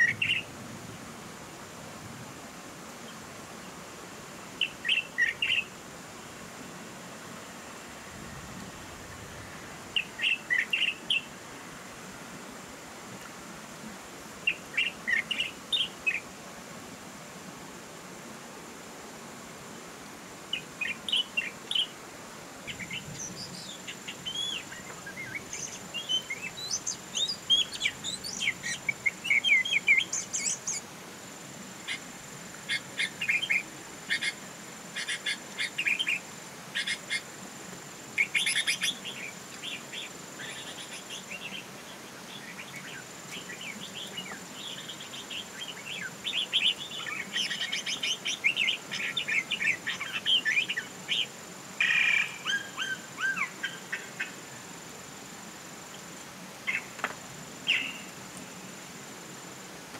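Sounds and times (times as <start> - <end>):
birds chirping: 0.0 - 0.5, 4.6 - 5.7, 9.4 - 11.4, 14.4 - 16.2, 20.5 - 22.0, 22.6 - 30.9, 32.7 - 34.4, 38.2 - 54.4, 57.7 - 58.1.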